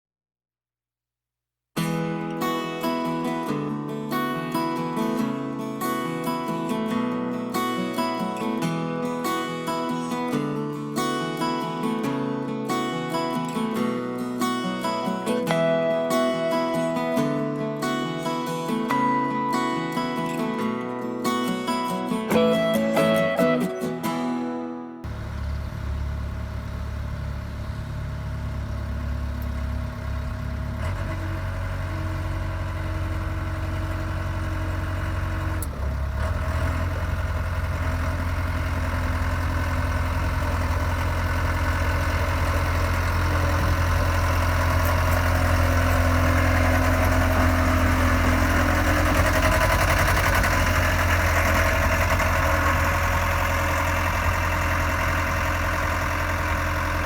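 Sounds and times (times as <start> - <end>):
diesel roller engine running: 12.8 - 20.8, 25.0 - 57.0.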